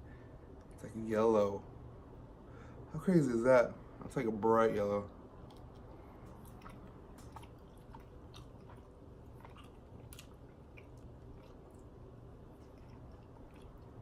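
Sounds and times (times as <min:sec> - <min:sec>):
person chewing soft candy: 0:05.3 - 0:14.0
mouth clicks and smacks: 0:05.4 - 0:14.0.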